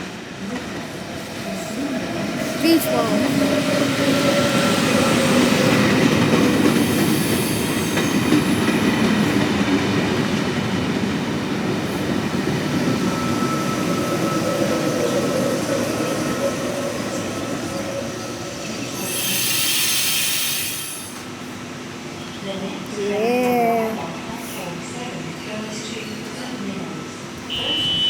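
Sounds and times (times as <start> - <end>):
train wheels rumbling and squealing: 0.0 - 22.5.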